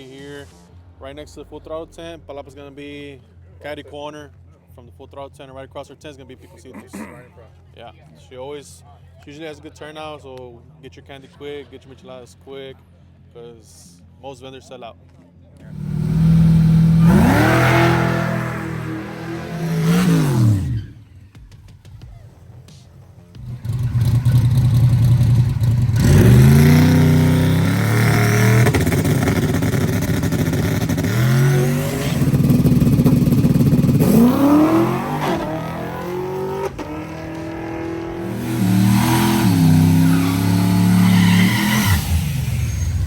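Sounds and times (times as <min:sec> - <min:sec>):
truck engine accelerating: 0:15.6 - 0:21.1, 0:23.4 - 0:43.0.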